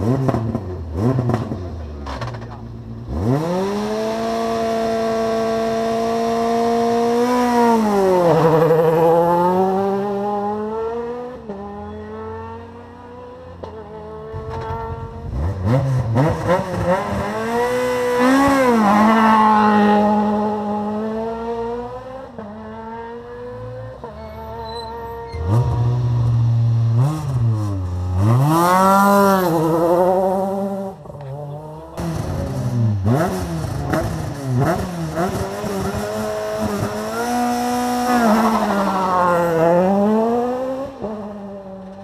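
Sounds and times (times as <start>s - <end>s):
rally car engine revving: 0.0s - 42.0s.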